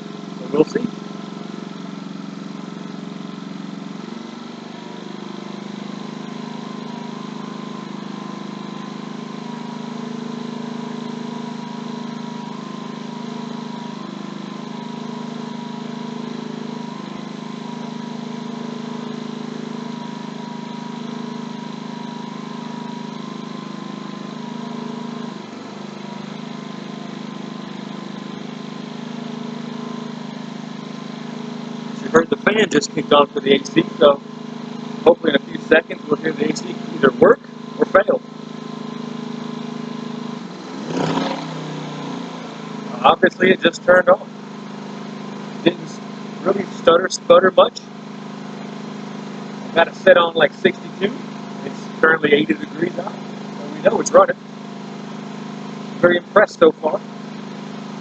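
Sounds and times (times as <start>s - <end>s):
air conditioner fan: 0.0s - 58.0s
generator running: 0.0s - 58.0s.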